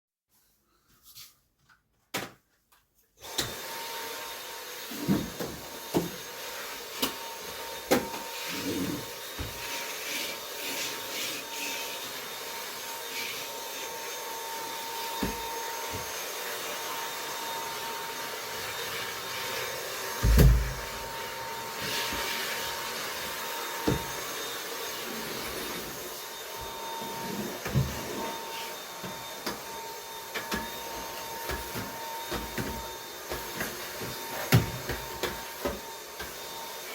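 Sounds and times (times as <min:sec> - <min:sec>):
vacuum cleaner running: 0:03.2 - 0:36.9
knocks and thumps: 0:20.2 - 0:21.0.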